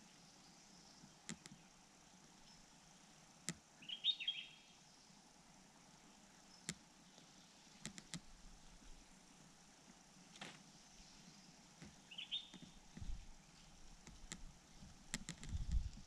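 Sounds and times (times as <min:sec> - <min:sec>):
faint outdoor background: 0:00.0 - 0:16.0
bird chirping: 0:03.8 - 0:05.1, 0:10.7 - 0:12.8
sharp clicks: 0:07.8 - 0:08.3, 0:15.1 - 0:16.0.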